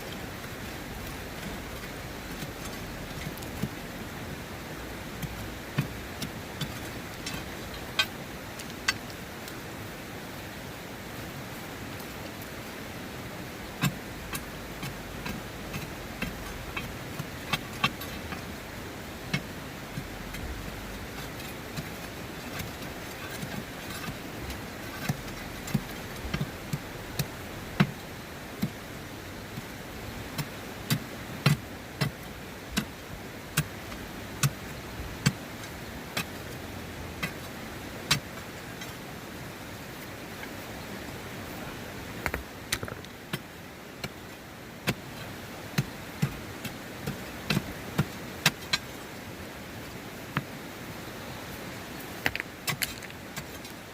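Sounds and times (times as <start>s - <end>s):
river rushing: 0.0s - 53.9s.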